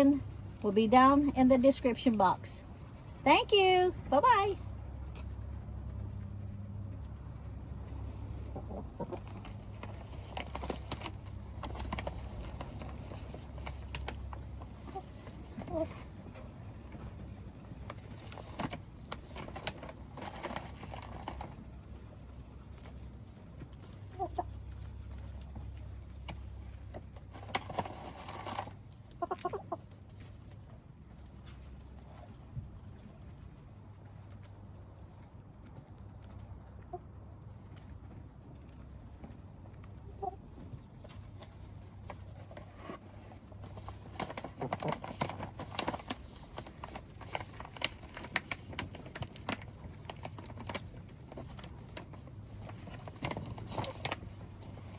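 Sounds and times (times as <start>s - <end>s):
chickens pecking: 0.0s - 54.9s
hens clucking: 7.8s - 17.1s, 23.8s - 24.8s, 28.6s - 30.0s, 39.3s - 44.1s.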